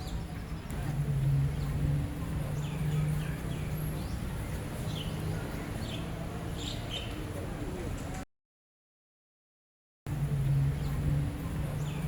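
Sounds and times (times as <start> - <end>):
small birds chirping: 0.0 - 7.4, 10.7 - 12.0.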